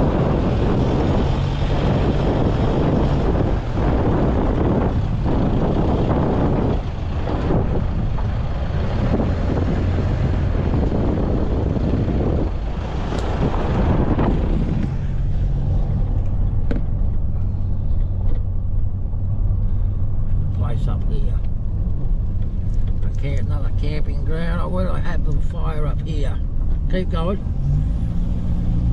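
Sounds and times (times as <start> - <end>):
tyre and road noise: 0.0 - 28.9
vehicle engine drone: 0.0 - 28.9.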